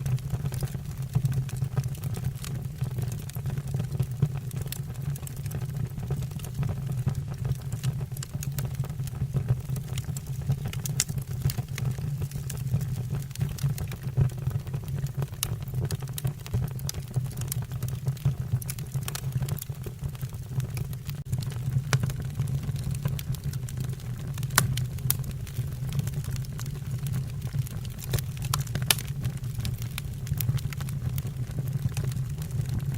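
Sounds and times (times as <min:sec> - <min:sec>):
fire low rumble: 0:00.0 - 0:32.9
wood fire crackling and popping: 0:00.0 - 0:32.9.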